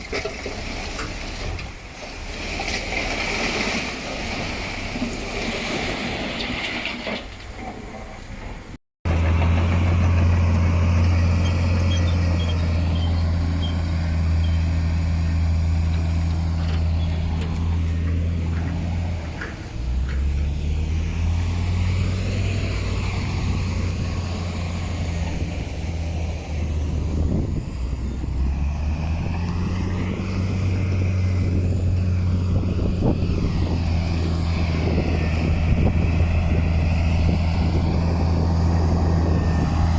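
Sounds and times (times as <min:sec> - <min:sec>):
heavy diesel engine droning: 0:08.4 - 0:39.9.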